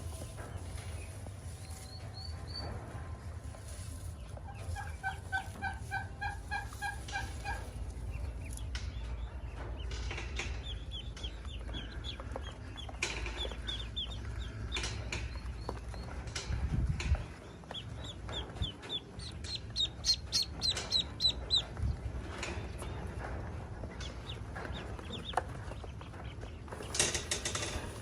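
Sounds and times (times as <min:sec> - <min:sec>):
ducklings peeping: 0:00.0 - 0:28.0.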